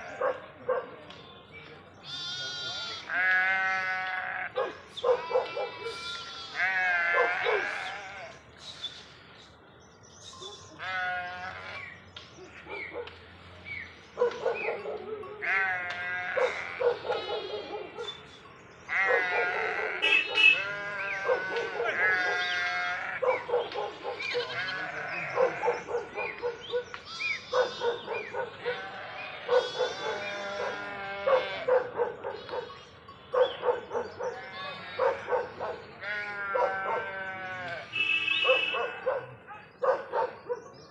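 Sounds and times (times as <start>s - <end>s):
goats bleating: 2.0s - 9.2s, 10.8s - 11.9s, 15.4s - 17.7s, 18.9s - 23.4s, 24.3s - 25.9s, 27.1s - 31.7s, 35.9s - 38.2s.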